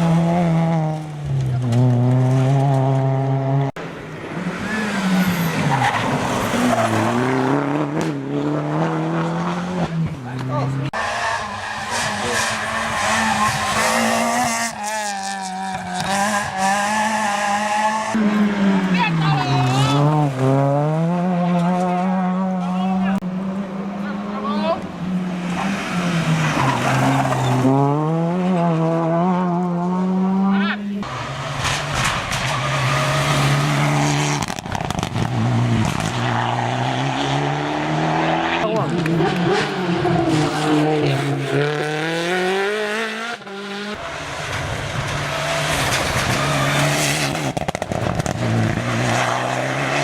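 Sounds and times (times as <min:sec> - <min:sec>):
rally car engine at high revs: 0:00.0 - 0:50.0
engine cracks and pops: 0:31.6 - 0:32.6, 0:34.3 - 0:36.2, 0:44.5 - 0:48.5.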